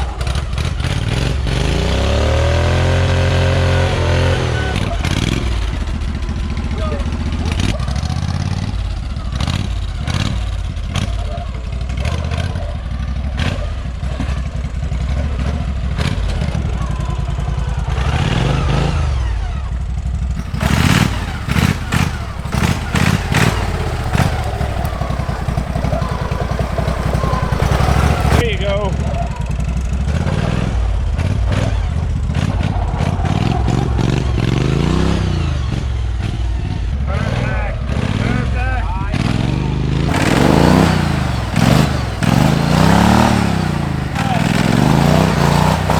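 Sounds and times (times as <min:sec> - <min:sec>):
clattering: 0:20.4 - 0:28.4
lawn tractor engine revving: 0:20.4 - 0:28.4, 0:40.1 - 0:45.9.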